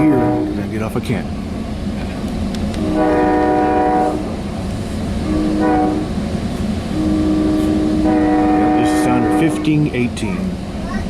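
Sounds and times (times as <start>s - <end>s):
train horn blasts: 0.0s - 0.6s, 2.8s - 4.5s, 5.2s - 9.8s
train rumbling at platform: 0.0s - 11.0s.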